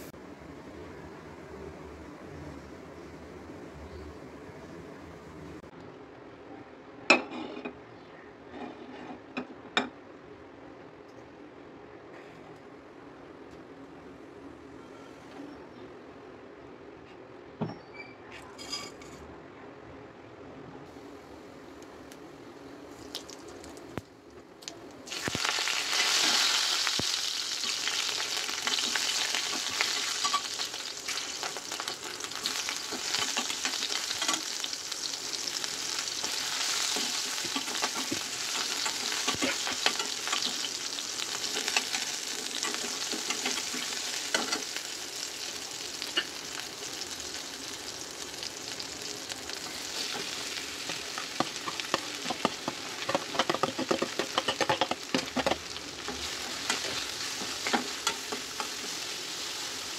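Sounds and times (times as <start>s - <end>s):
hot oil sizzling and crackling: 22.9s - 59.9s
spatula stirring: 49.9s - 59.4s.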